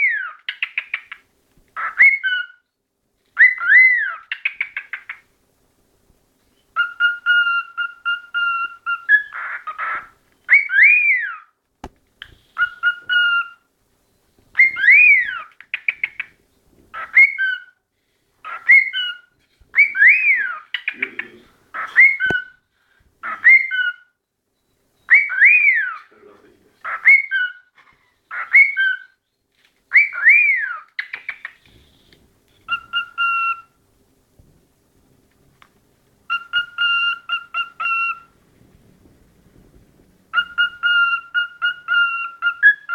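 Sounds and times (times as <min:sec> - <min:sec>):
cockatiel whistling song: 0:00.0 - 0:01.2, 0:01.8 - 0:02.7, 0:03.4 - 0:05.2, 0:06.5 - 0:11.5, 0:12.2 - 0:16.4, 0:17.0 - 0:17.8, 0:18.4 - 0:22.6, 0:23.2 - 0:26.1, 0:26.8 - 0:33.8, 0:36.3 - 0:38.4, 0:40.3 - 0:42.9.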